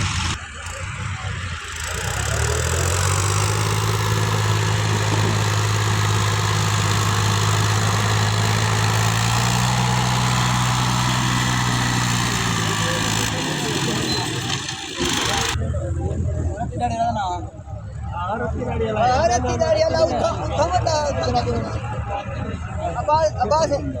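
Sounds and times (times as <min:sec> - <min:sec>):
engine running steadily: 0:00.0 - 0:15.6.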